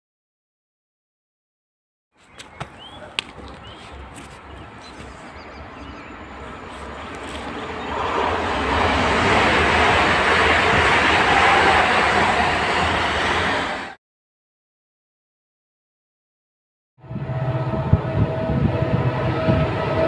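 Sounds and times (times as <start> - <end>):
electric train passing: 4.0 - 14.0, 17.0 - 20.0.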